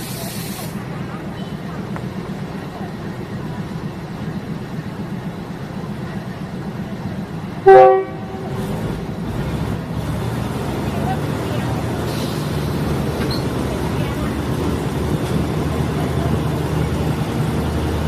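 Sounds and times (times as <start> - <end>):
train rumbling: 0.0 - 18.0
train horn blast: 7.6 - 8.8.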